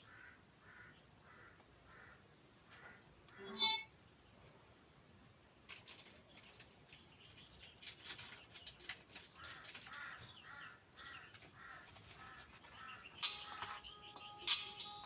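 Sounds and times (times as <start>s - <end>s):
crow cawing: 0.0s - 3.5s, 9.4s - 13.9s.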